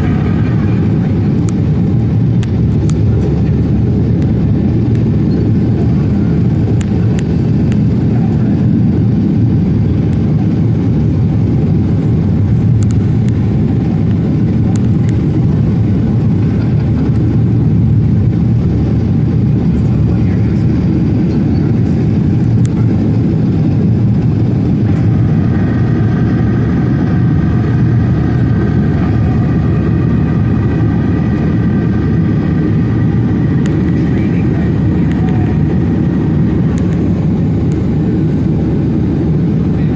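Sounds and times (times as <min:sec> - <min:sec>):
jet engines rumbling on takeoff: 0:00.0 - 0:39.9.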